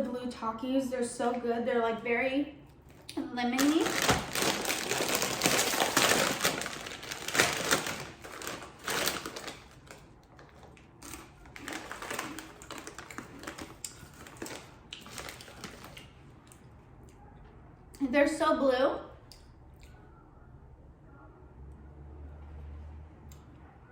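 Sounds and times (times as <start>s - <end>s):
crunching tortilla chips: 3.6s - 16.6s.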